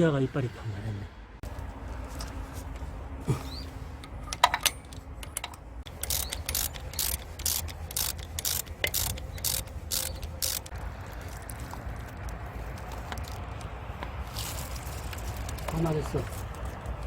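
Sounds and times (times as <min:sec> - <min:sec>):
sharp metal clicks: 0:04.0 - 0:10.8
ratchet wrench clicking: 0:04.0 - 0:11.4.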